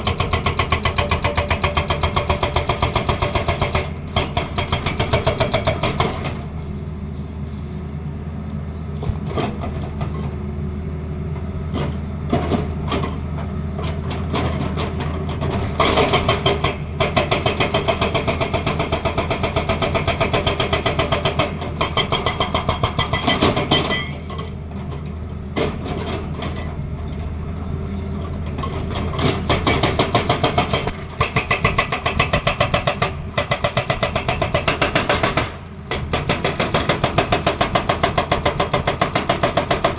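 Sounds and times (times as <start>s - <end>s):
hydraulic breaker hammering: 28.6s - 39.9s.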